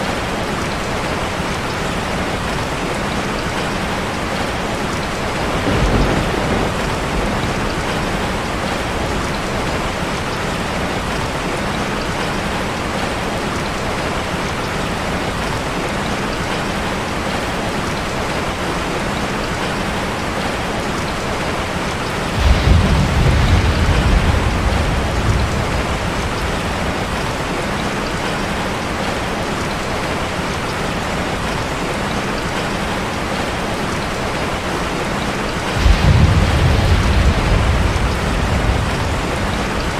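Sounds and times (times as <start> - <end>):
rain on a metal roof: 0.0 - 39.9
thunder rumble: 3.2 - 11.2, 21.8 - 28.6, 35.6 - 39.9.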